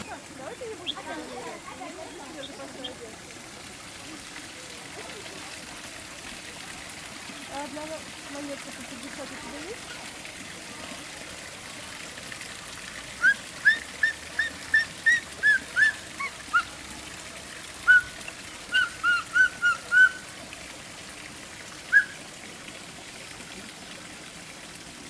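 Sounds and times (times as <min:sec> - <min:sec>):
running water: 0:00.0 - 0:25.0
bird whistling notes: 0:13.2 - 0:16.7, 0:17.8 - 0:20.2, 0:21.9 - 0:22.2.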